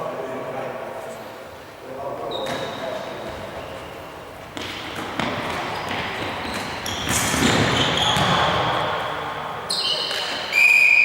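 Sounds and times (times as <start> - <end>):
sneaker squeaks on floor: 2.3 - 11.0
ball knocks echoing: 4.5 - 9.0.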